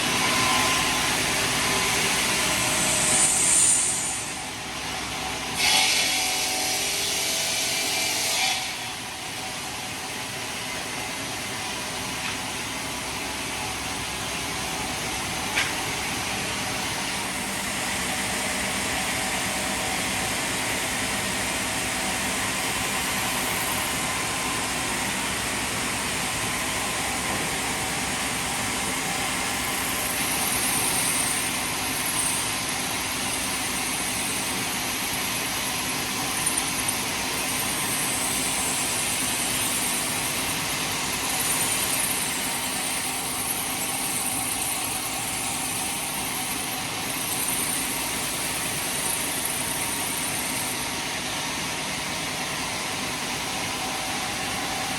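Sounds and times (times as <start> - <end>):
heavy machinery running: 9.1 - 54.9.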